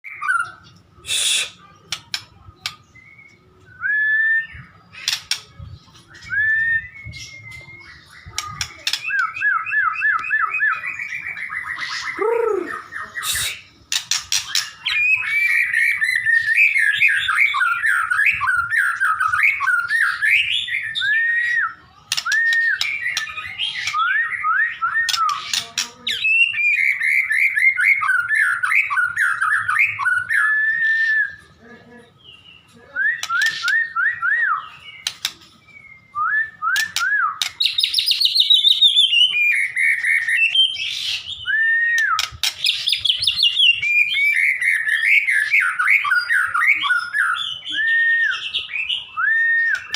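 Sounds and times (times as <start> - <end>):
bird singing whistled phrases: 2.6 - 13.8, 14.4 - 31.4, 32.4 - 49.9
sharp clicks: 35.0 - 35.5, 42.0 - 42.8.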